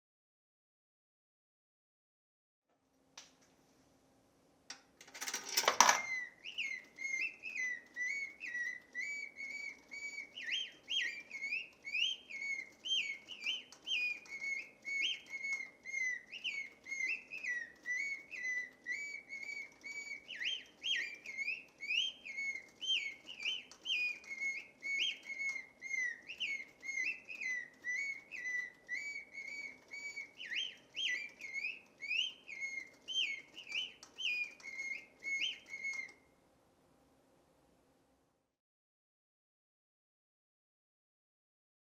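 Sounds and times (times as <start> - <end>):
faint steady hum: 2.7 - 38.6
mechanical rattle: 5.0 - 6.8
mechanical bird whistle warbling: 5.5 - 36.2.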